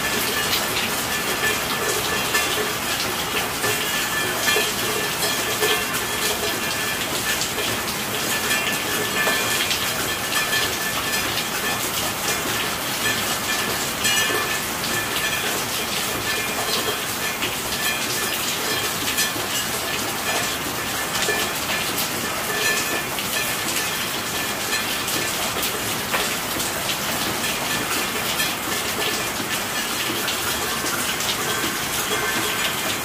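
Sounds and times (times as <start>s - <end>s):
steady rainfall: 0.0s - 33.0s
raindrop hits crackling: 0.2s - 7.4s, 12.2s - 33.0s.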